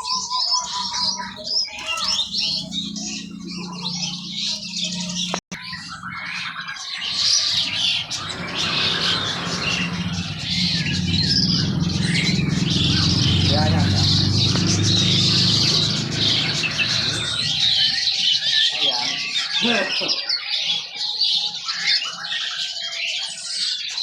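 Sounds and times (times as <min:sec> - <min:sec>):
songbirds chirping and twittering: 0:00.0 - 0:24.0.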